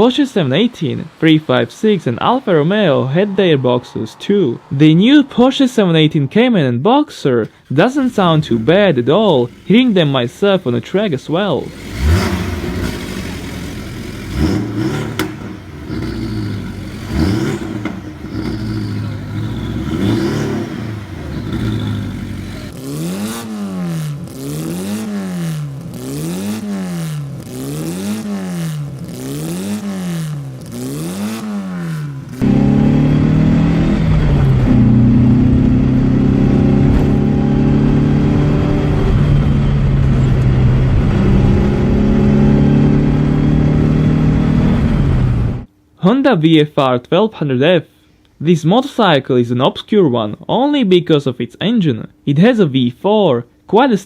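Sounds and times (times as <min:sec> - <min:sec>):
engine revving: 0:07.6 - 0:45.7
loud engine at high speed: 0:07.8 - 0:45.7.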